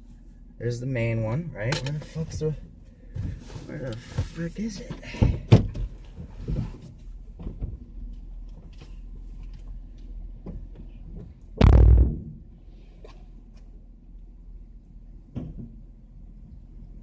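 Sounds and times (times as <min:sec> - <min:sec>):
heavy thump: 0:11.6 - 0:12.4.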